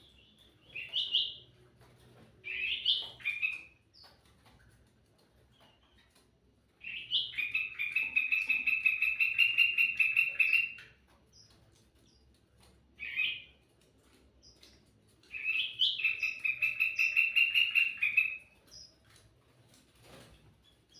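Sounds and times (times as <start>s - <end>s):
songbird trilling: 15.3s - 18.9s.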